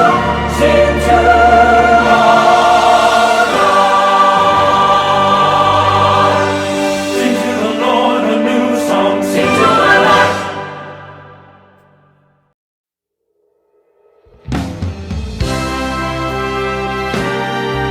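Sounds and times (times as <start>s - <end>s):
choir singing worship song: 0.0s - 11.7s.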